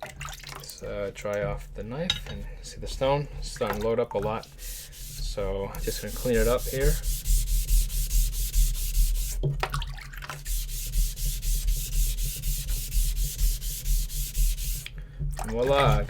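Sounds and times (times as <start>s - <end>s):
eraser rubbing on whetstone: 4.4s - 9.4s, 10.4s - 14.9s.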